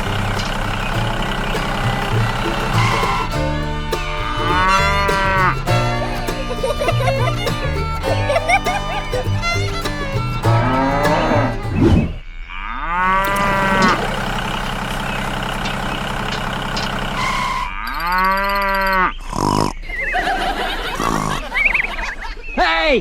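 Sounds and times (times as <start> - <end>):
cattle mooing: 10.6 - 14.7.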